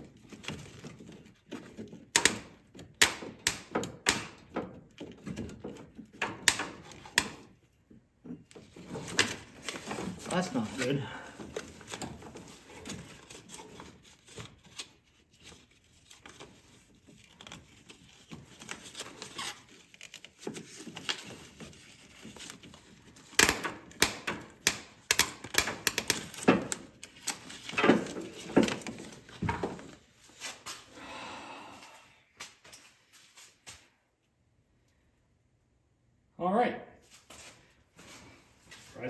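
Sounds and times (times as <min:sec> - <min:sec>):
tools clicking and knocking: 0:00.3 - 0:10.3, 0:22.7 - 0:29.9.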